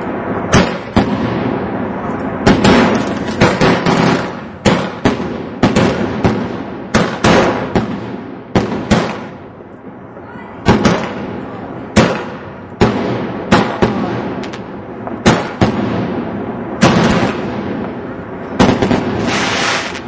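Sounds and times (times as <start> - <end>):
fireworks banging: 0.0 - 20.0
rushing hiss: 19.1 - 20.0.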